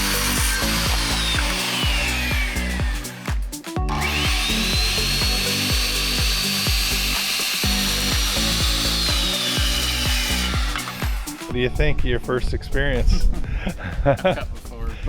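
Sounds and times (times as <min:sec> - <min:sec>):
circular saw whine: 0:00.0 - 0:11.7
background music with steady beat: 0:00.0 - 0:15.0.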